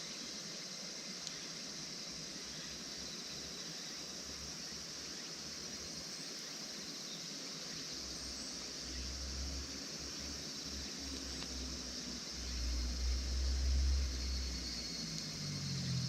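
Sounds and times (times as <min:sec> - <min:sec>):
high-pitched hiss: 0:00.0 - 0:16.0
low rumble: 0:11.1 - 0:16.0.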